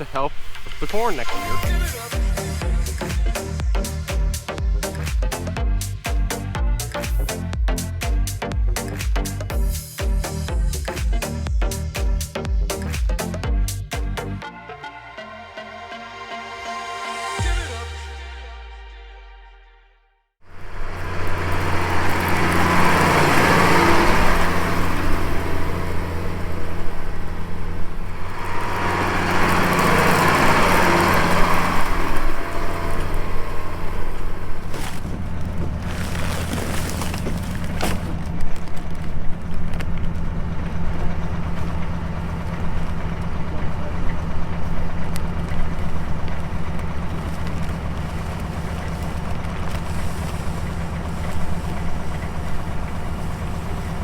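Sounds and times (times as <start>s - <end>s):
hissing noise: 0.0s - 13.4s
farm vehicle engine running: 0.0s - 14.4s, 20.5s - 54.0s.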